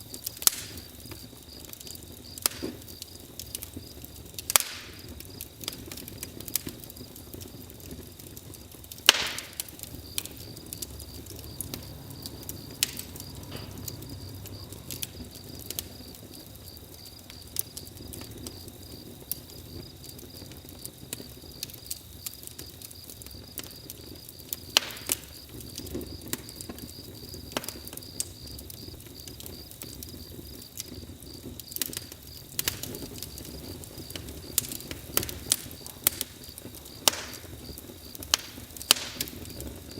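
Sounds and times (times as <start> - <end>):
campfire crackling and popping: 0.0 - 39.9
soft steady rumble: 2.8 - 20.6.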